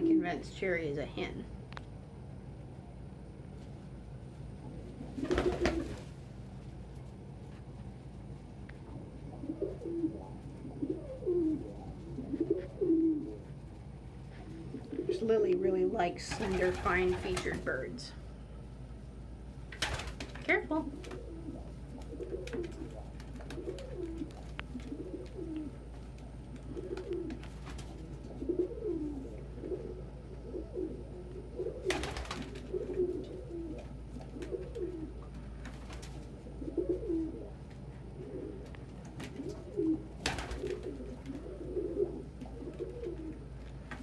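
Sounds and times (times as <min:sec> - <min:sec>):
pigeons cooing: 0:00.0 - 0:00.4, 0:04.6 - 0:06.2, 0:08.8 - 0:15.3, 0:16.3 - 0:17.9, 0:20.8 - 0:44.0.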